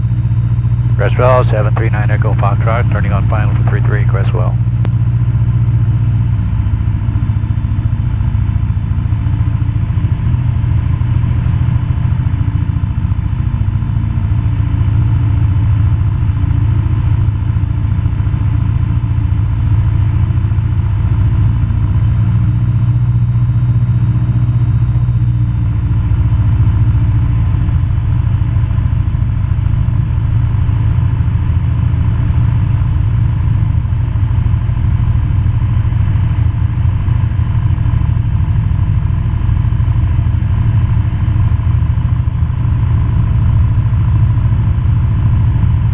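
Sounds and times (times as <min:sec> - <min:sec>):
light aircraft engine drone: 0:00.0 - 0:45.9.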